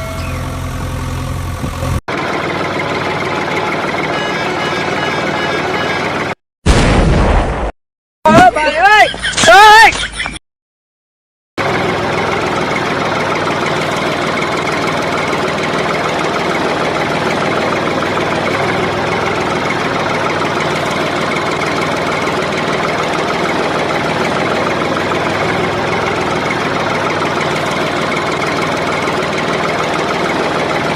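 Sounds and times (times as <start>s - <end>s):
small engine with rapid knocking: 11.6s - 30.9s.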